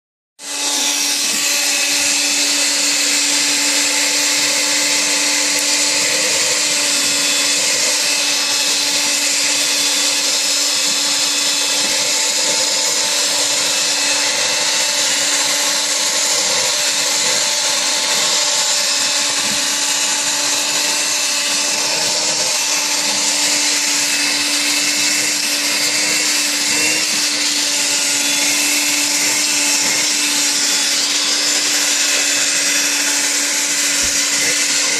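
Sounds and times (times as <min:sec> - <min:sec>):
vacuum cleaner running: 0:00.4 - 0:34.9.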